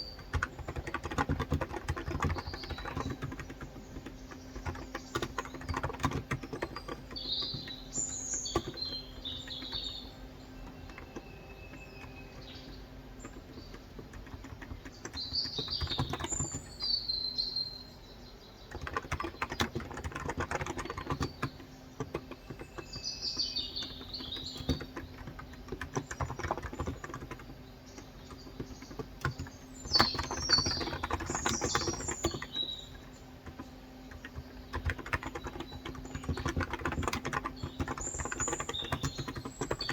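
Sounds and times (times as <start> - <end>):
keyboard typing: 0.0 - 16.9, 18.7 - 39.9
birds chirping: 0.0 - 39.9.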